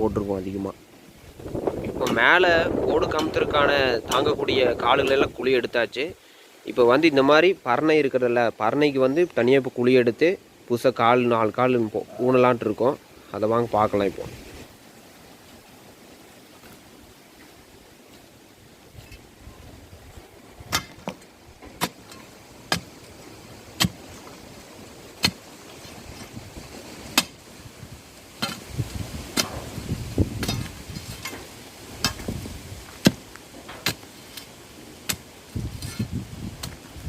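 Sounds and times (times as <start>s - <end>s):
scraping and rustling: 28.4s - 37.0s.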